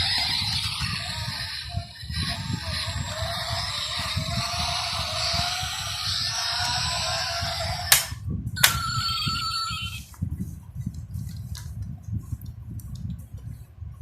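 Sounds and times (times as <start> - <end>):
sharp clicks: 7.9 - 8.8.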